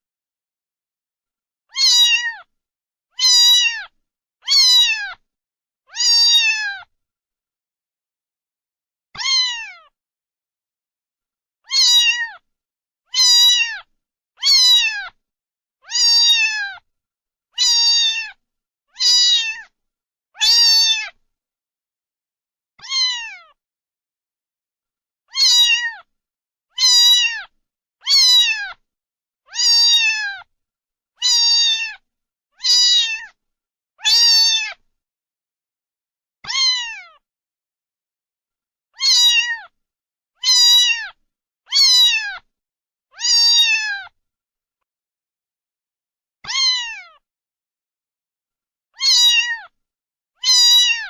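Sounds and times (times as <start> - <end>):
cat meowing: 1.7 - 2.5, 3.2 - 5.2, 5.9 - 6.9, 9.2 - 10.0, 11.6 - 12.4, 13.1 - 15.2, 15.8 - 16.8, 17.6 - 18.4, 19.0 - 19.7, 20.4 - 21.2, 22.8 - 23.6, 25.3 - 26.1, 26.7 - 28.8, 29.5 - 30.5, 31.2 - 32.0, 32.6 - 33.4, 34.0 - 34.8, 36.4 - 37.2, 39.0 - 39.8, 40.4 - 42.5, 43.1 - 44.2, 46.4 - 47.2, 49.0 - 49.8, 50.4 - 51.0.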